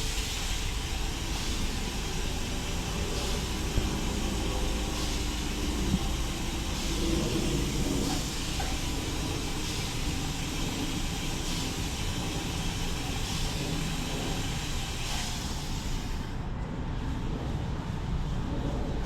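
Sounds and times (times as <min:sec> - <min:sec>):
spraying water hiss: 0:00.0 - 0:16.4
car wash machinery rumble: 0:00.0 - 0:19.0.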